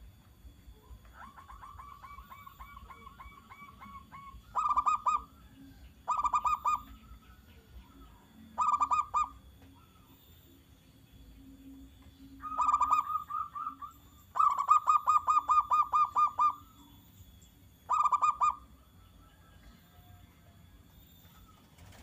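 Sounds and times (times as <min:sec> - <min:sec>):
dove rapid staccato calls: 0:01.1 - 0:05.4, 0:06.0 - 0:07.0, 0:08.6 - 0:10.2, 0:12.4 - 0:16.7, 0:17.9 - 0:18.7.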